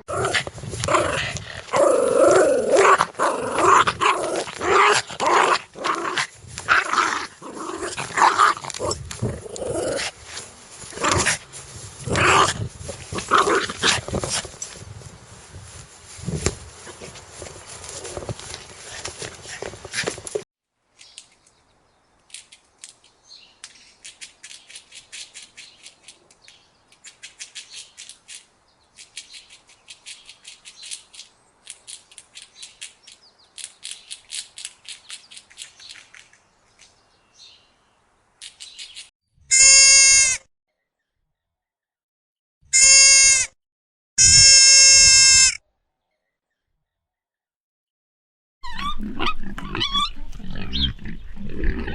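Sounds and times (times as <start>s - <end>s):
goat bleating: 39.5s - 40.4s, 42.7s - 43.5s, 44.2s - 45.6s.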